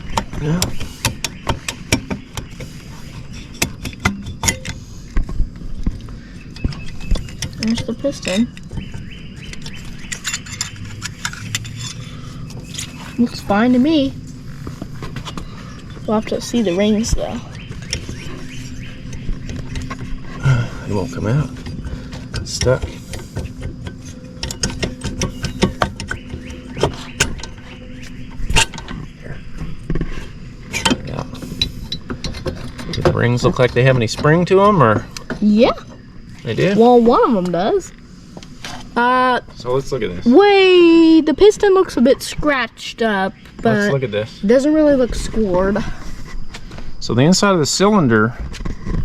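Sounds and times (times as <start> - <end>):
steady low hum: 0.0 - 49.0
metallic clicks and knocks: 3.5 - 4.8, 21.6 - 29.0
low thumps: 12.6 - 37.8.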